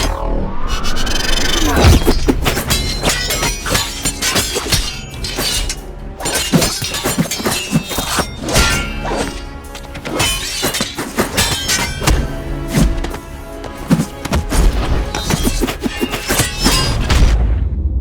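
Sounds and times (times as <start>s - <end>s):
film music score: 0.0s - 18.0s
punch and kick impacts: 10.0s - 13.2s.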